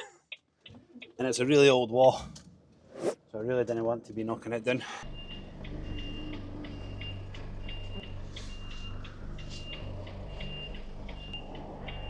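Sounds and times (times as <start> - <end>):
diesel engine humming: 5.0 - 12.0
reversing alarm beeping: 5.0 - 12.0.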